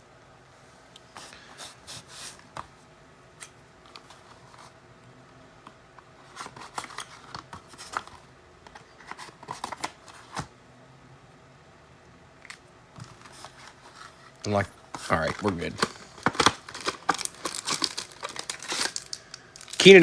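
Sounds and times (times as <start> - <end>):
card packaging crinkling: 6.2 - 8.2, 13.0 - 20.0.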